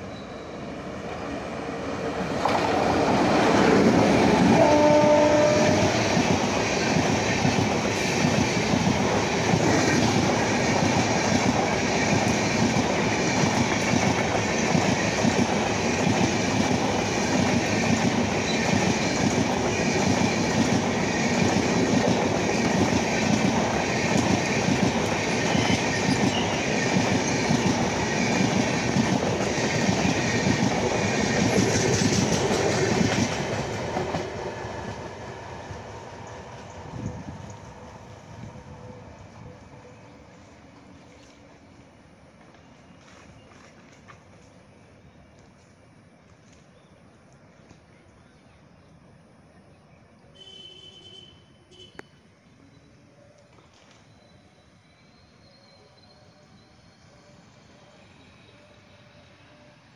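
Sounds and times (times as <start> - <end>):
train wheels rolling on rails: 0.0 - 46.8.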